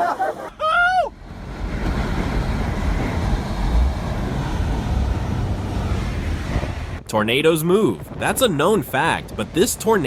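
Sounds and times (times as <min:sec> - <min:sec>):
brief rising and falling cry: 0:00.1 - 0:01.2
loud rushing rumble: 0:01.1 - 0:10.0.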